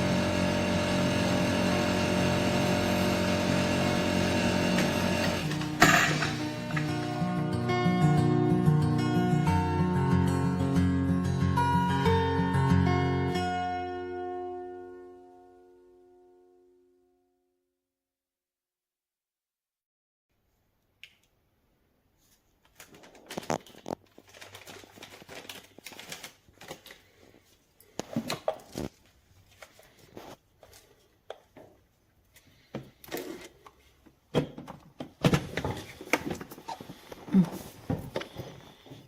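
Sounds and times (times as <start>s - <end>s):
objects being handled: 5.2s - 7.2s, 22.2s - 39.0s.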